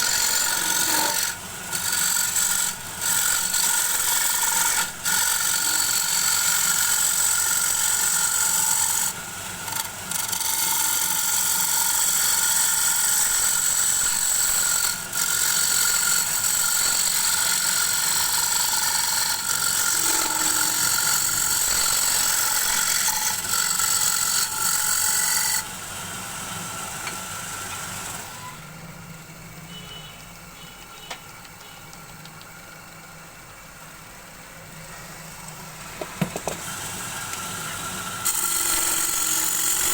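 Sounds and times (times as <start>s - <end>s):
tool cutting spinning wood: 0.0s - 25.8s, 35.1s - 39.9s
lathe machine hum: 0.0s - 29.2s.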